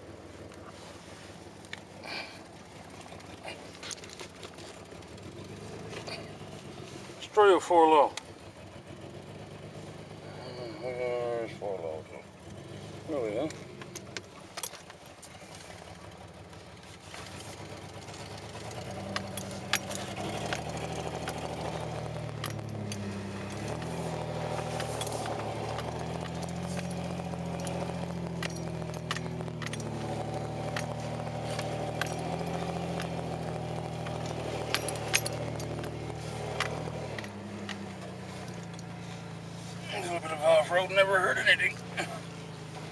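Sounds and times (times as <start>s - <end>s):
pickup truck engine pulling: 0.0s - 42.9s
loose parts rattling: 13.4s - 39.8s.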